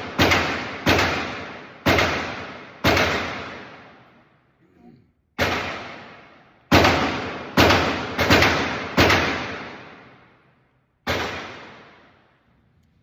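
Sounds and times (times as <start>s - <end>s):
gunshots ringing: 0.0s - 4.0s, 5.4s - 10.3s, 11.0s - 12.2s.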